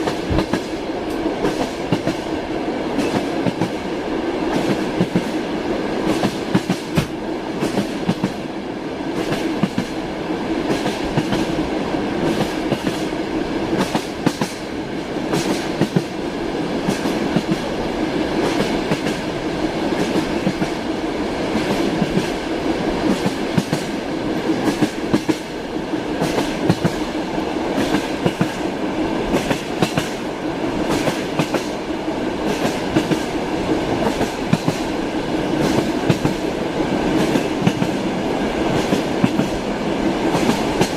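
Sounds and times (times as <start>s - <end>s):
train rumbling along rails: 0.0s - 40.9s
wheels clacking on track: 6.0s - 8.4s.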